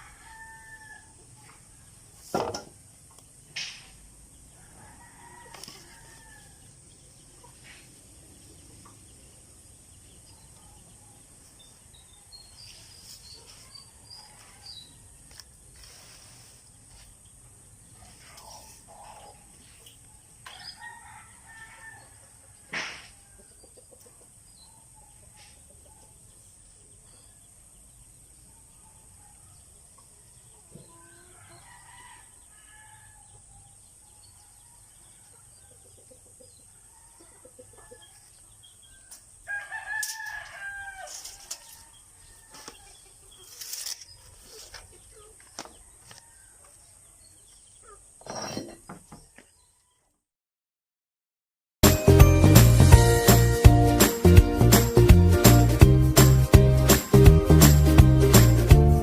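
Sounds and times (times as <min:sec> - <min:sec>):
rooster crowing: 0:00.0 - 0:01.2, 0:04.6 - 0:06.7, 0:20.5 - 0:23.4, 0:31.0 - 0:33.3, 0:39.5 - 0:42.7
chickens clucking: 0:07.0 - 0:09.2, 0:18.0 - 0:20.7, 0:22.2 - 0:26.2, 0:35.0 - 0:39.3, 0:41.2 - 0:48.1.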